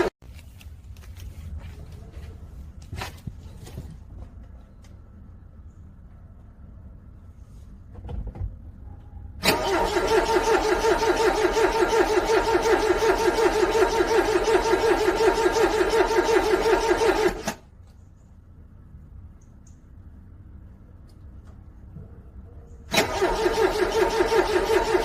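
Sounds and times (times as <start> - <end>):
car starter cranking engine: 9.4 - 17.7, 22.9 - 25.0.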